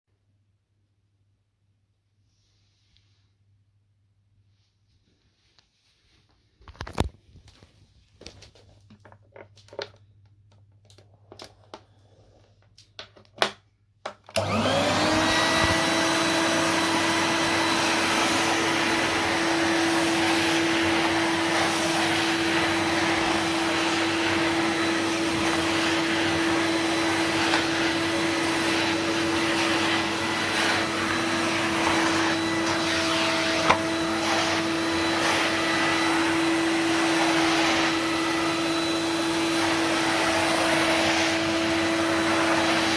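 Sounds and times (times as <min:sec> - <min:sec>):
vacuum cleaner running: 0:14.3 - 0:42.9.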